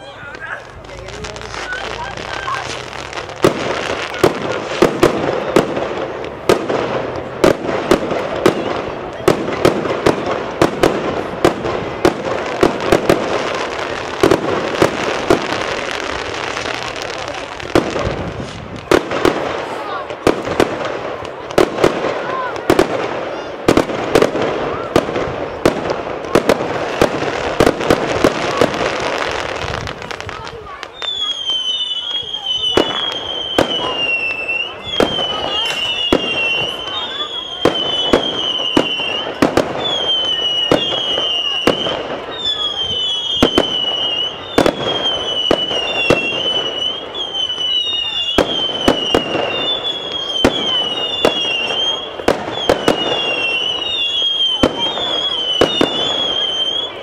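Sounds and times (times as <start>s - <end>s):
crackling hiss: 0.0s - 22.2s, 22.8s - 57.0s
fireworks bangs: 0.0s - 57.0s
high whistling tone: 31.0s - 38.0s.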